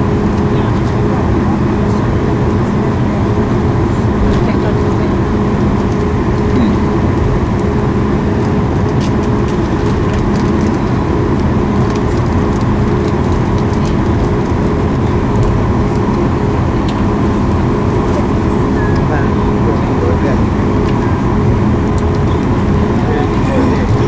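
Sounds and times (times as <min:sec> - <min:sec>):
airplane cabin engine drone: 0:00.0 - 0:24.0.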